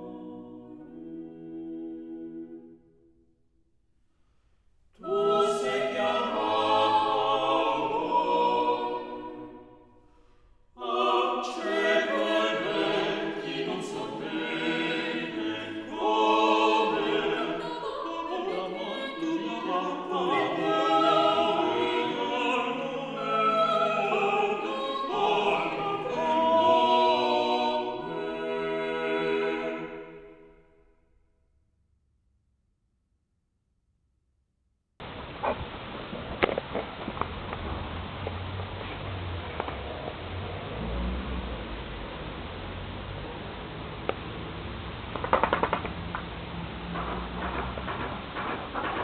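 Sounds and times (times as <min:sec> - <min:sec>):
operatic choir with orchestra: 0:00.0 - 0:03.1, 0:05.0 - 0:30.9.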